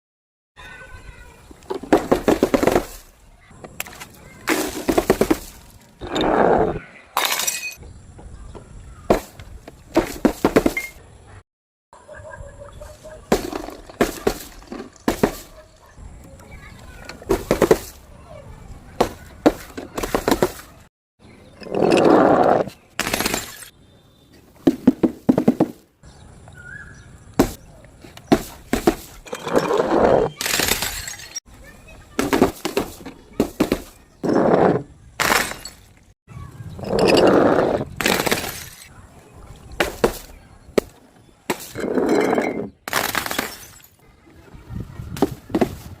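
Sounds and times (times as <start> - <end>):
glass bottles crushing: 7.2 - 7.8, 29.2 - 31.4, 35.2 - 35.9, 41.6 - 44.0
glass shattering: 7.2 - 7.8, 30.4 - 31.4, 35.2 - 35.9, 41.8 - 44.0.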